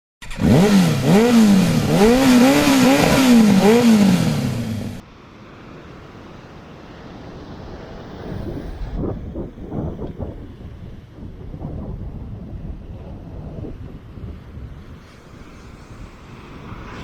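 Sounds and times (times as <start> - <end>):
small engine revving: 0.2 - 5.0
faint rushing noise: 1.4 - 11.1, 14.0 - 17.0.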